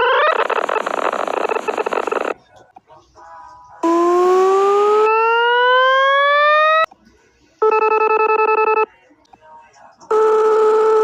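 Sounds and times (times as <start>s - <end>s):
synthesized rising tone: 3.8s - 6.9s.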